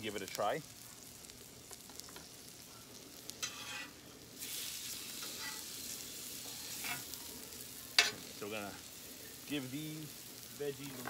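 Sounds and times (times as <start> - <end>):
food sizzling on griddle: 0.0 - 11.0
metal spatula scraping griddle: 3.3 - 5.8, 6.6 - 7.1.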